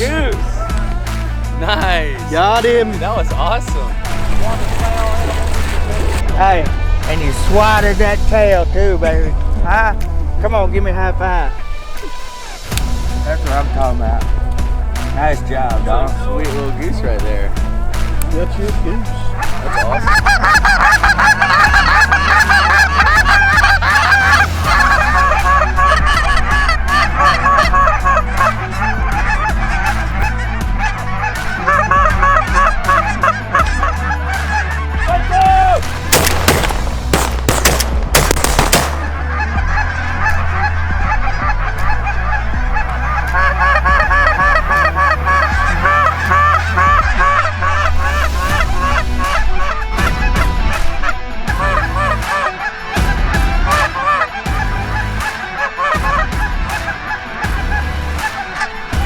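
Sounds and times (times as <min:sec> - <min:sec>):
geese honking: 0:19.1 - 0:35.3, 0:36.1 - 0:59.0
shotgun shots: 0:36.1 - 0:39.3.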